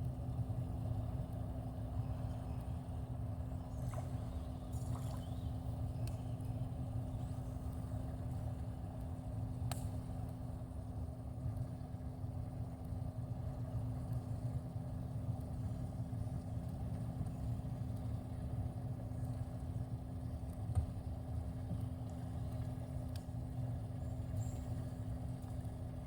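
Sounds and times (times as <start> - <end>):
low mechanical hum: 0.0 - 26.0
faint tick: 6.0 - 6.2, 21.8 - 23.3.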